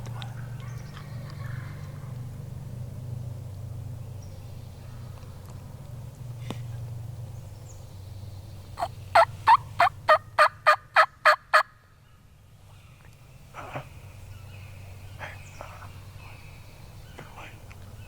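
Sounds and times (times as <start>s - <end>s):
wild turkey yelping: 8.8s - 11.7s.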